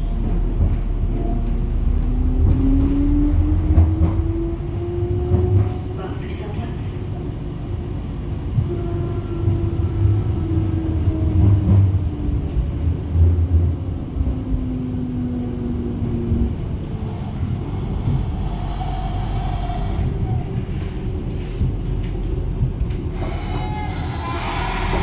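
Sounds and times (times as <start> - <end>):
tram wheels rumbling on rails: 0.0 - 25.0
tram whining tones: 15.2 - 25.0.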